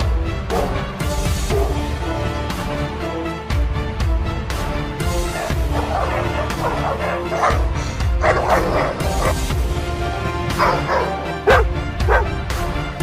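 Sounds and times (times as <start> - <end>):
background music: 0.0 - 13.0
dog barking: 0.5 - 0.9, 1.5 - 1.9, 5.3 - 9.5, 10.5 - 12.4.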